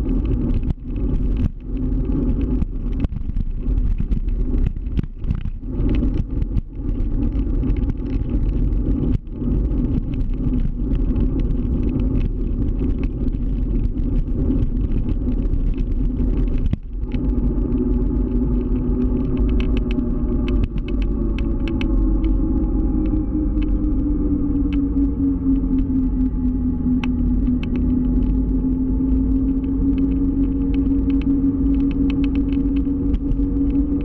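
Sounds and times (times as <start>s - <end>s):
steady hum: 0.0s - 34.0s
wind and road noise: 0.0s - 34.0s.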